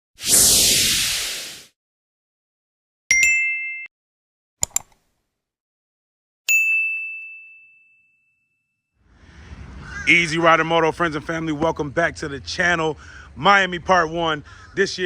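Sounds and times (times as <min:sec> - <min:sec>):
falling whoosh: 0:00.2 - 0:01.7
quick clicks: 0:04.6 - 0:05.0
high ringing ding: 0:06.5 - 0:08.9.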